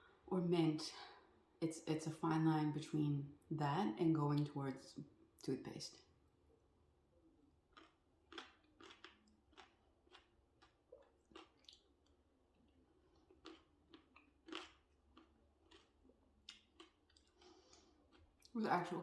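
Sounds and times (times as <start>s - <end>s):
chewing crunchy candy: 7.7s - 18.6s.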